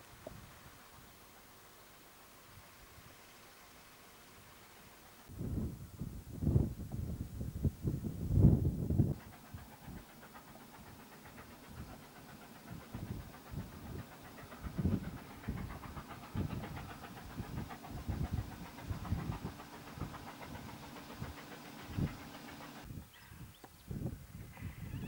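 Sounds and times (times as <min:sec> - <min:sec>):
faint steady hiss: 0:00.0 - 0:12.7
steady low hum: 0:00.0 - 0:23.4
steam locomotive exhaust puffs: 0:00.0 - 0:24.8.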